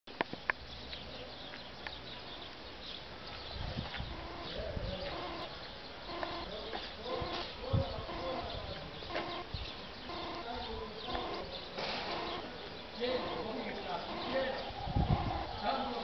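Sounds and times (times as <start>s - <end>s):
birds calling in short notes: 0.6s - 16.0s
dove-like cooing: 4.0s - 12.5s, 13.1s - 16.0s.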